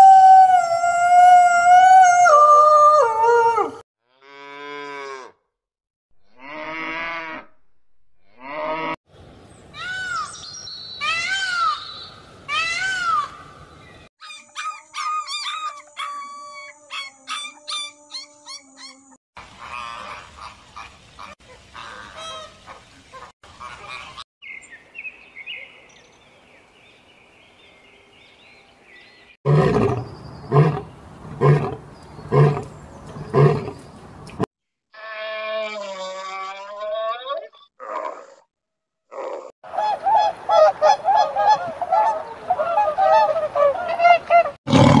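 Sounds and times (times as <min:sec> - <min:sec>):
bird songs: 0:09.4 - 0:12.2, 0:13.6 - 0:19.2, 0:23.8 - 0:34.4
peacock call: 0:14.2 - 0:20.9.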